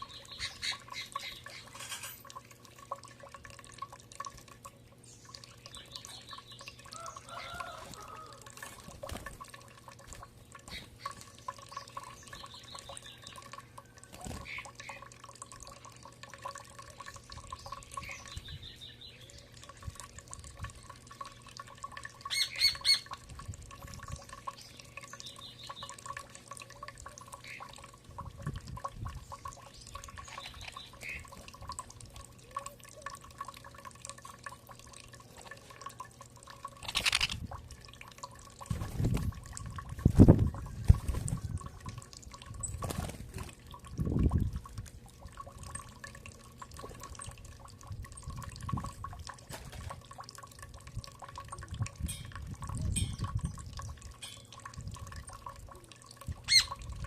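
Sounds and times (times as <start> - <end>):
birds calling: 0.0 - 2.2, 22.2 - 23.2, 29.2 - 31.4, 36.8 - 37.4, 56.4 - 56.8
faint steady hum: 0.0 - 57.0.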